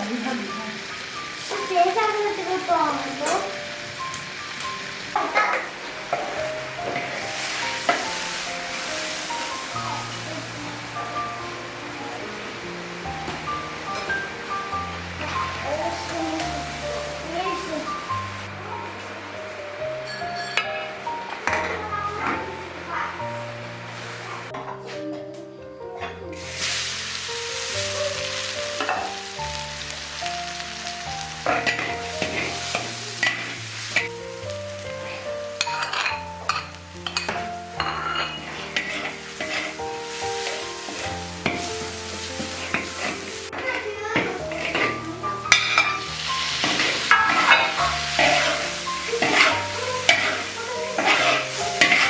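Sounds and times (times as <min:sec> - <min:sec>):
meat sizzling in hot oil: 0:00.0 - 0:24.5, 0:26.3 - 0:52.0
spatula scraping a pan: 0:26.4 - 0:29.2, 0:29.9 - 0:34.1, 0:35.0 - 0:52.0.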